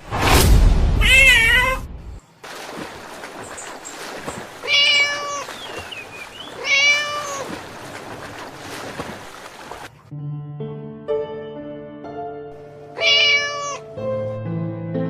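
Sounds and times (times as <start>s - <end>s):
cat meowing: 1.0s - 1.8s, 4.6s - 5.5s, 6.6s - 7.5s, 13.0s - 13.9s
background music: 10.1s - 15.0s.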